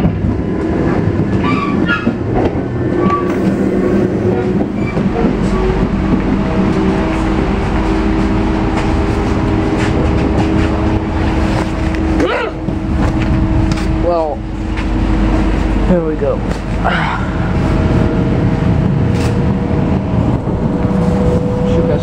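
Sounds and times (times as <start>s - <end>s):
train low rumble: 0.0s - 22.0s
humming tone: 2.5s - 15.9s.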